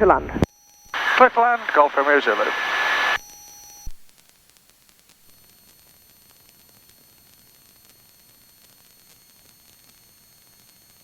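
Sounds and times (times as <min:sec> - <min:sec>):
radio hiss: 0:00.0 - 0:04.0.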